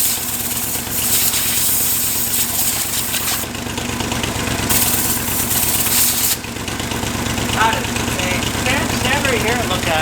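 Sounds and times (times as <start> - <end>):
hiss: 0.0 - 3.4, 4.7 - 6.4
engine running with firing pulses: 0.0 - 10.0.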